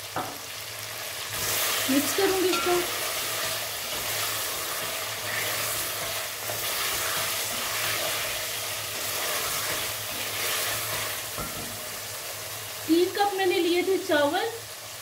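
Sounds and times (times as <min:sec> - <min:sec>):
food sizzling in oil: 0:00.0 - 0:15.0
spatula stirring in pot: 0:01.3 - 0:11.8.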